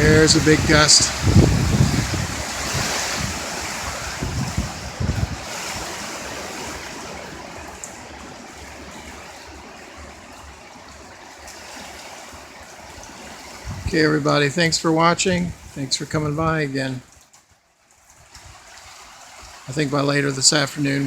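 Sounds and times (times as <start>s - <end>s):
wind thumps on microphone: 0.0s - 7.5s, 13.6s - 14.0s
strong wind gust rushing: 0.0s - 7.7s, 13.4s - 16.6s.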